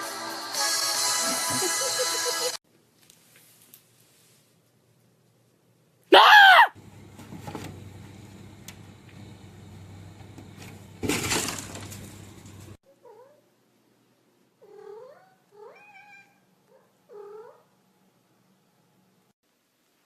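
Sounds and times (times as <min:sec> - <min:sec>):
cat meowing: 0:14.6 - 0:16.4.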